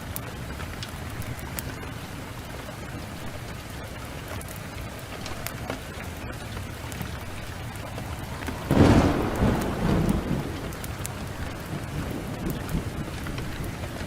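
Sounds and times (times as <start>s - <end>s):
heavy rain: 0.0s - 14.0s
wood fire crackling: 0.0s - 14.0s
loud thunderclap: 8.0s - 14.0s.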